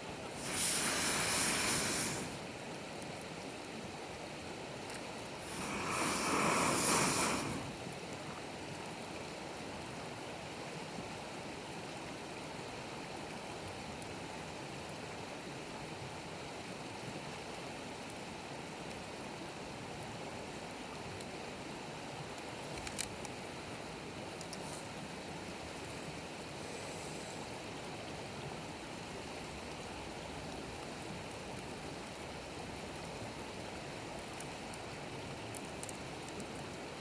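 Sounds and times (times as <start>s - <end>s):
campfire hissing: 0.0s - 3.0s, 4.8s - 8.3s, 24.4s - 28.0s
fire crackle: 0.1s - 3.2s, 4.8s - 8.2s, 31.2s - 36.9s
rush of noise: 0.3s - 2.4s, 5.4s - 7.8s.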